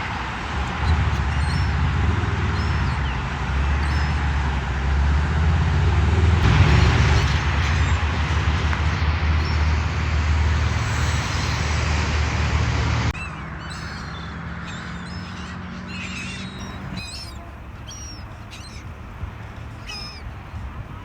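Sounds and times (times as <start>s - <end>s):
birds calling: 0.1s - 21.0s
loud rushing noise with rumble: 5.0s - 13.2s.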